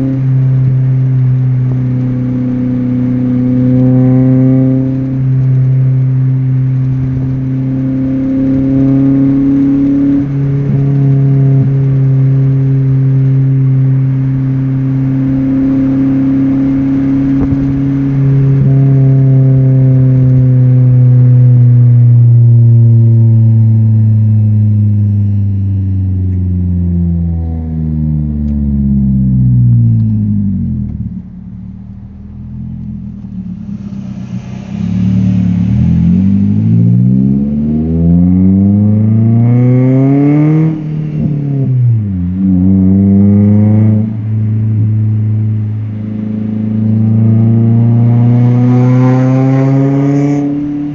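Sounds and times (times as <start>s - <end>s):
car engine droning: 0.0s - 50.9s.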